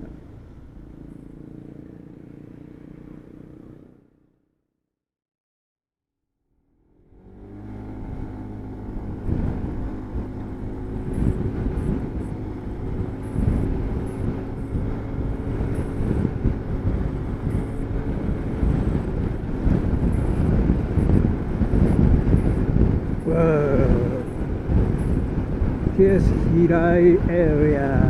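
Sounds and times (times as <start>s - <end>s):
motor scooter engine running: 0.0s - 4.2s, 6.8s - 28.0s
wind buffeting microphone: 7.3s - 28.0s.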